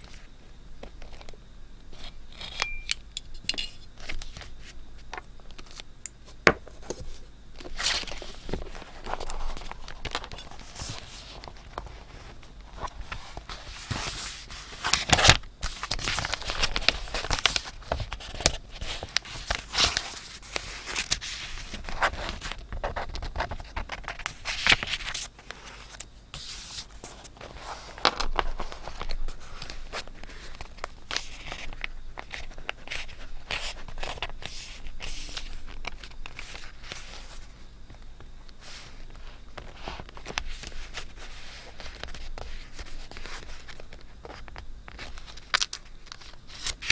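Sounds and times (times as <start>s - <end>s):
paper rustling and crinkling: 4.0s - 46.9s.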